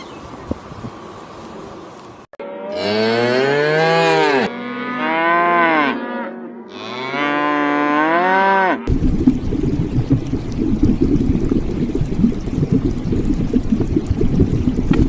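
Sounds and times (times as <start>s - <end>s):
moo-like animal calls: 2.4s - 8.9s
steady rushing noise: 8.9s - 15.0s.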